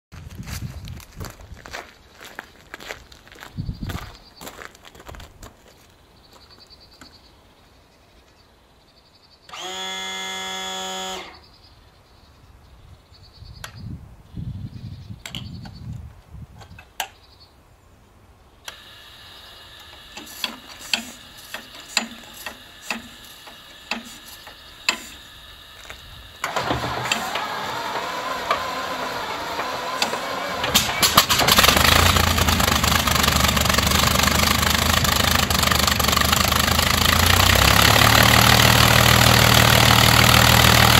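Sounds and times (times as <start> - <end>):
aircraft engine cranking and starting: 18.7 - 40.9.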